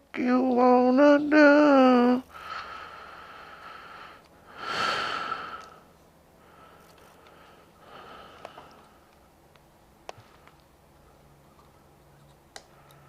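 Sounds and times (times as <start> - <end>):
person exhaling through nose: 2.4 - 5.8.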